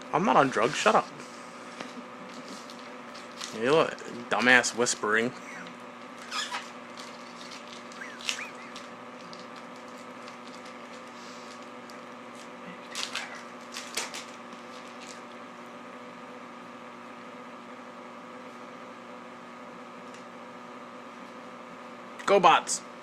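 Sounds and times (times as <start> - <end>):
steady background hum: 0.0 - 23.0
foil packs crinkling: 2.3 - 5.0, 6.1 - 15.4.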